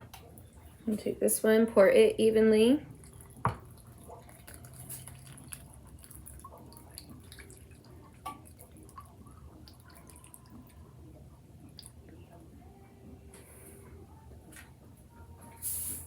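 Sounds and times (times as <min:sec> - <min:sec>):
small drips and ticks: 0:02.8 - 0:12.2
liquid pouring onto oats: 0:03.0 - 0:09.1.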